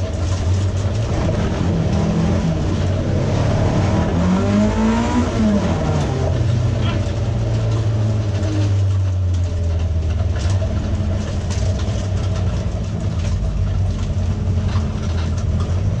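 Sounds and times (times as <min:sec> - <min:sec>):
car engine at low revs: 0:00.0 - 0:16.0
clicks and rattles: 0:06.0 - 0:16.0.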